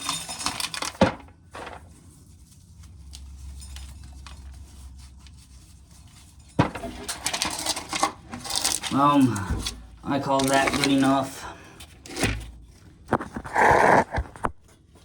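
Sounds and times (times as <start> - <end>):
corn kernels clattering: 6.6 - 11.5.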